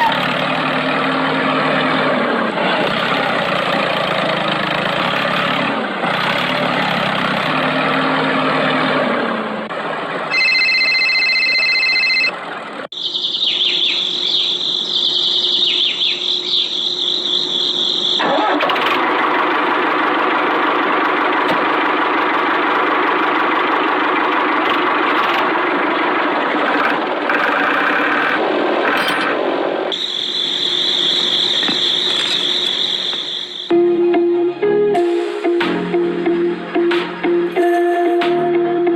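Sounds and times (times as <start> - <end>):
tractor engine running: 0.0 - 13.0, 14.0 - 33.7
high steady tone: 10.3 - 12.4, 29.9 - 38.9.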